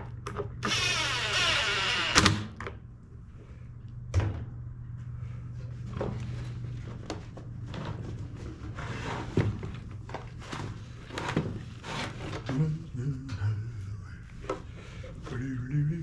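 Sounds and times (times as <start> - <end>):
low hum: 0.0 - 8.6
power tool whirring: 0.6 - 2.5.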